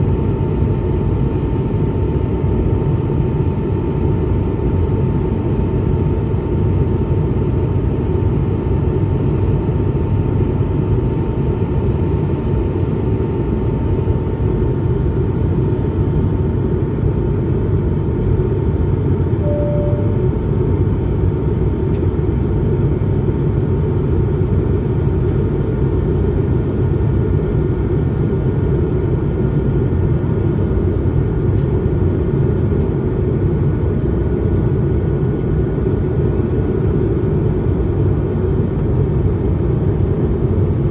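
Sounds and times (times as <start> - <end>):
aircraft cabin engine roar: 0.0 - 40.9
short single tone: 19.4 - 20.4
thin steady whine: 19.4 - 20.6.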